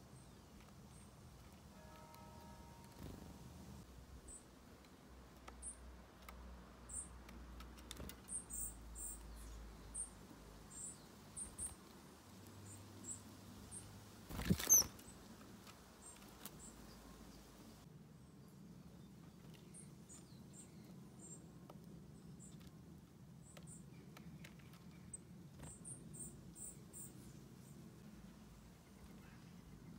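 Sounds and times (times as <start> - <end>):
high-pitched thin bird calls: 14.3 - 15.1.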